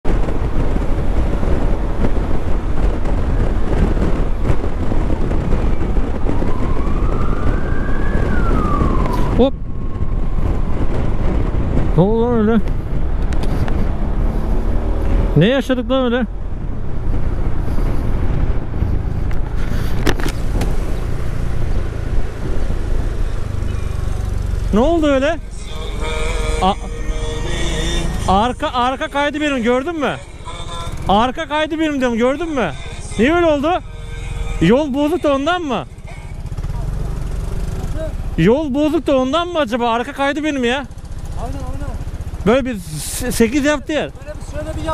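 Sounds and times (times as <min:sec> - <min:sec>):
wind buffeting microphone: 0:00.0 - 0:35.2
motorcycle engine rumble: 0:00.0 - 0:44.9
whining tone rising in pitch: 0:05.8 - 0:11.7, 0:23.2 - 0:37.5.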